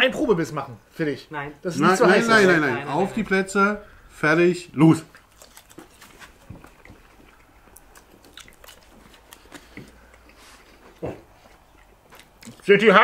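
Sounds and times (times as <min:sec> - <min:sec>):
people chewing sausages: 0:03.8 - 0:13.0.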